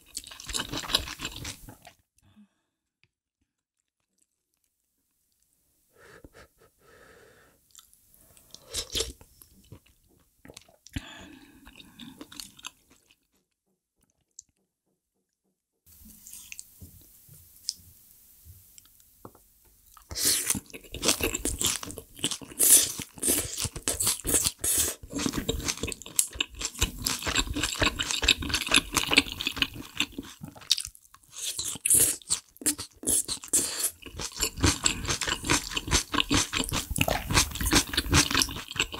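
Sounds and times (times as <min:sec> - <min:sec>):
wet chewing and crunching: 0:00.0 - 0:02.0, 0:19.9 - 0:38.9.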